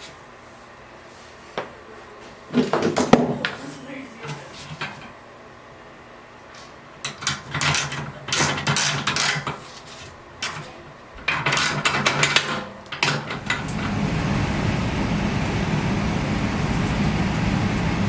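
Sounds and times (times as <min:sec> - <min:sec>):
blower motor running: 0:13.2 - 0:18.0.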